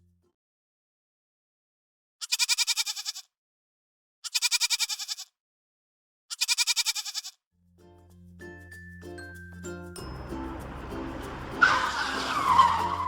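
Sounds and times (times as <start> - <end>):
goat bleating: 2.2 - 3.3, 4.3 - 5.3, 6.3 - 7.4.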